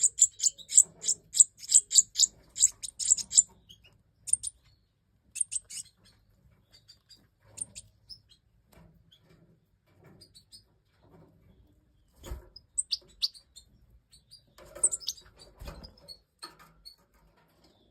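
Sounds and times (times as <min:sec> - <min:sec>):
goldfinches chirping: 0:00.0 - 0:04.6, 0:05.4 - 0:06.0.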